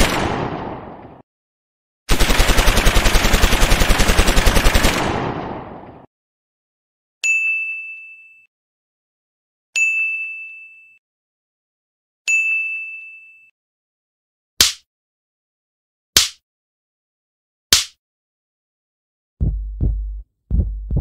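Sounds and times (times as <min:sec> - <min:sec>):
bright bell ding: 0:07.2 - 0:08.5, 0:09.8 - 0:11.0, 0:12.3 - 0:13.5.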